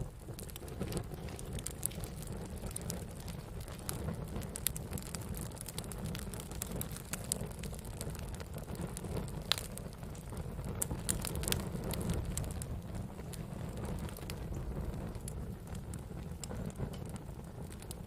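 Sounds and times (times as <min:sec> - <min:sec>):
campfire crackles and pops: 0:00.0 - 0:18.0
low rumble of flames: 0:00.0 - 0:18.0.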